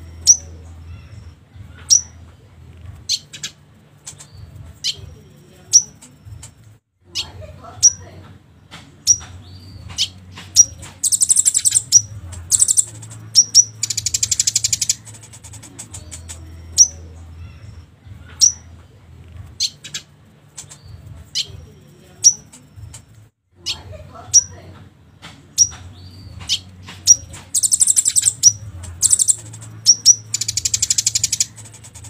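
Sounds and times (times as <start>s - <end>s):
bird rattling trills: 10.6s - 16.3s, 26.5s - 32.0s
sunbird chirps: 11.0s - 15.0s, 27.1s - 31.5s.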